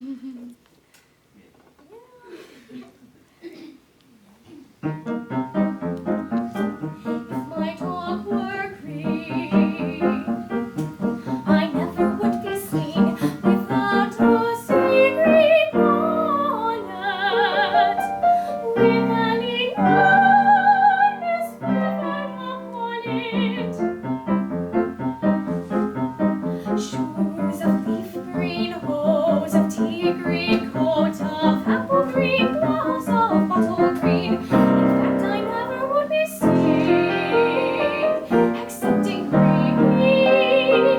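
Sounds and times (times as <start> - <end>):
piano accompaniment: 4.8 - 40.9
woman singing classical song: 6.6 - 40.9.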